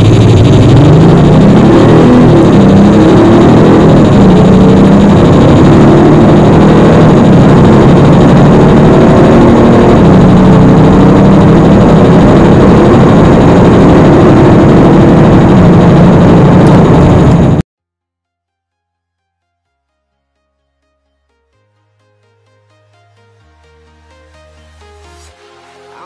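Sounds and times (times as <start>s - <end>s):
car engine accelerating hard: 0.0s - 17.6s.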